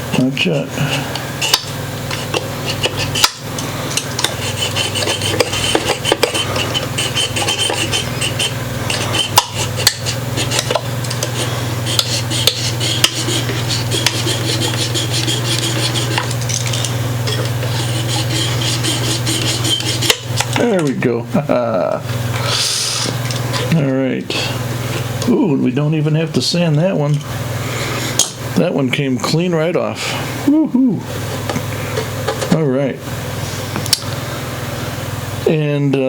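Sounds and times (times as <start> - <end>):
rasping and scraping wood: 0.0 - 20.7
steady low hum: 0.0 - 36.0.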